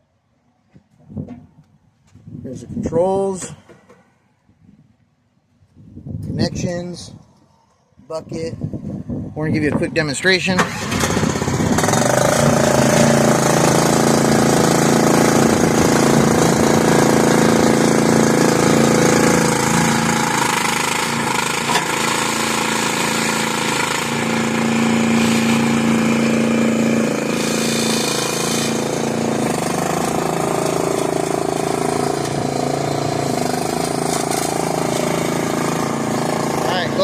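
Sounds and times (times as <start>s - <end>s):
skid steer loader engine running: 10.6s - 37.0s.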